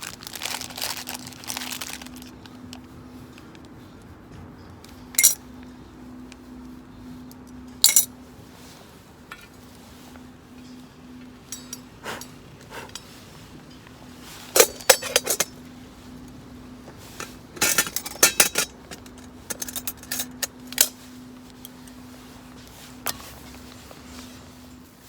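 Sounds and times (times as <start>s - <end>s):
metal gear clinking: 5.1s - 5.4s, 11.4s - 13.1s, 14.5s - 15.6s, 17.1s - 21.0s.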